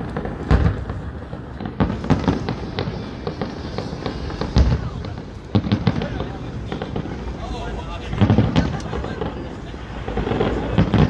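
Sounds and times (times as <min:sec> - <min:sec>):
firework bangs and crackles: 0:00.0 - 0:11.0.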